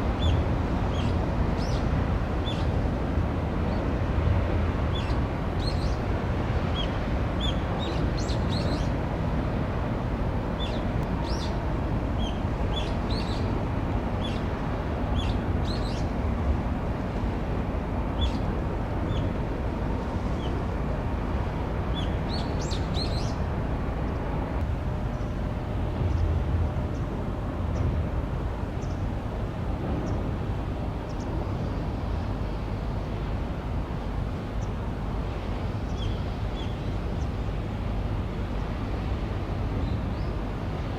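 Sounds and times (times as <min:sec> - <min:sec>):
steady low rumble: 0:23.2 - 0:40.9.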